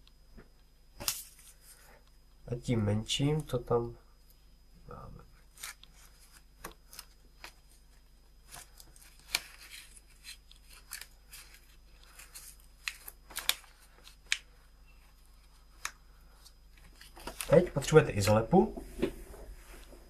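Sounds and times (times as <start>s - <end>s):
paper crackling and rustling: 5.5s - 18.0s.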